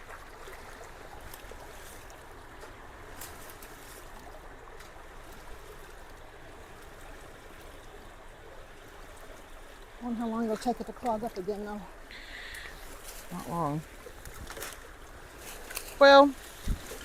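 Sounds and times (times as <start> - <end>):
creek water running: 0.0 - 17.0
faint clicks: 12.1 - 12.8.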